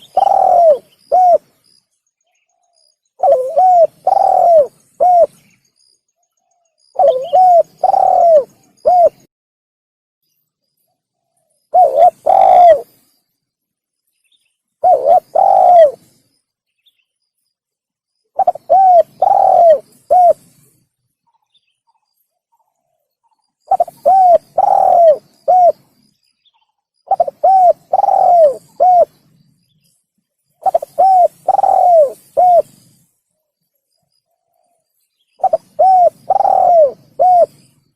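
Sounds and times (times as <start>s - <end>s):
dove cooing: 0.0s - 1.6s, 3.2s - 5.4s, 6.9s - 9.3s, 11.7s - 13.0s, 14.8s - 16.1s, 18.4s - 20.7s, 23.7s - 26.0s, 27.1s - 29.3s, 30.6s - 33.0s, 35.4s - 37.7s.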